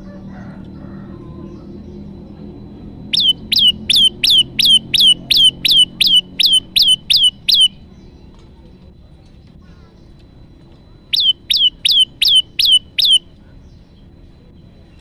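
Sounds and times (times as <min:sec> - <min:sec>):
low background hum: 0:00.0 - 0:15.0
bird call with descending notes: 0:00.3 - 0:08.2, 0:11.1 - 0:14.1.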